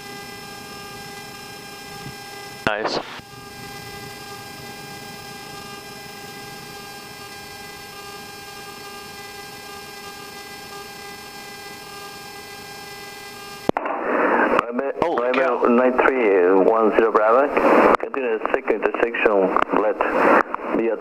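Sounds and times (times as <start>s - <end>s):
turboprop engines droning: 0.0s - 19.4s.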